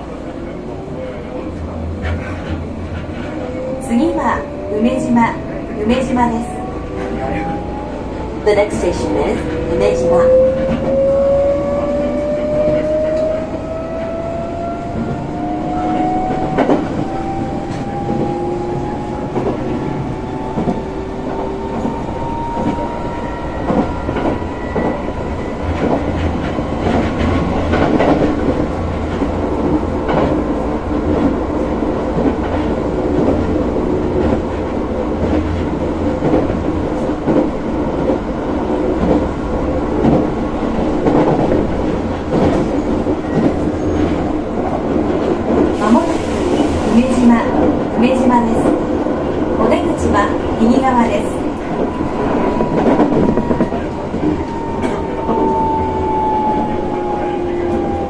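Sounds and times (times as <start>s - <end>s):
train rumble: 0.0s - 58.0s
train whine rising in pitch: 3.0s - 26.5s, 51.1s - 58.0s.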